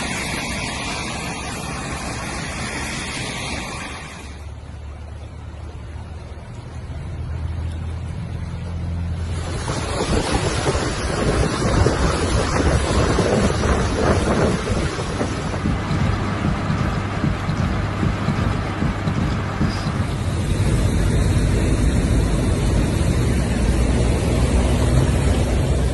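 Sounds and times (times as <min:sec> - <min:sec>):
heavy rain downpour: 0:00.0 - 0:25.9
wind buffeting microphone: 0:09.2 - 0:25.9.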